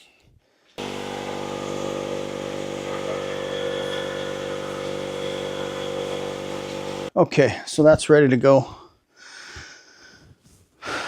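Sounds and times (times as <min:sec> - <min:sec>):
machine droning steadily: 0:00.8 - 0:07.1.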